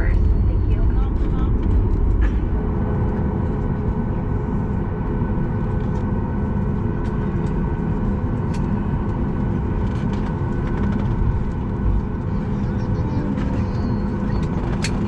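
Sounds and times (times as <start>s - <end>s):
airplane cabin drone: 0.0s - 15.0s.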